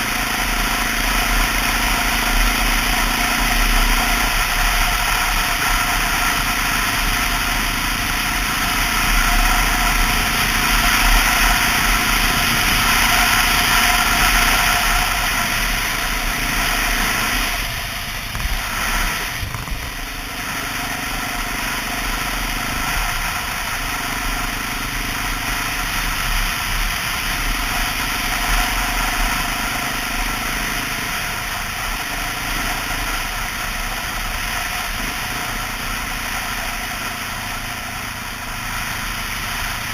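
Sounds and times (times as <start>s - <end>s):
motorcycle engine running: 0.0s - 39.9s
wind noise: 8.9s - 20.4s.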